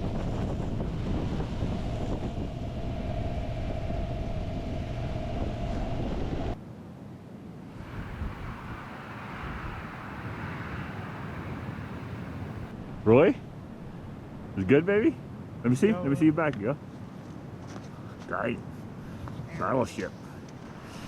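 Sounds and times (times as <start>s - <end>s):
strong wind buffeting microphone: 0.0s - 6.6s, 7.7s - 13.1s
rushing hiss: 7.9s - 12.7s.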